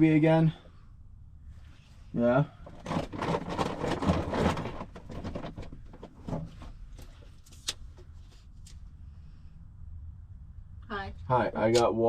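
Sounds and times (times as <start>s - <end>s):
rustling: 1.5s - 9.4s.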